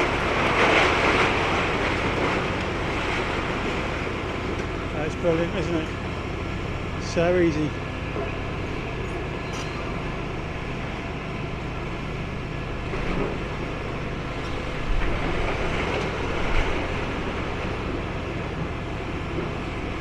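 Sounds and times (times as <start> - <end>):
diesel engine rumbling: 0.0 - 20.0.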